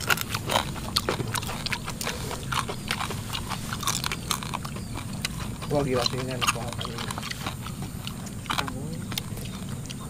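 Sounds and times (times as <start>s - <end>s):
person chewing crunchy food: 0.0s - 10.0s.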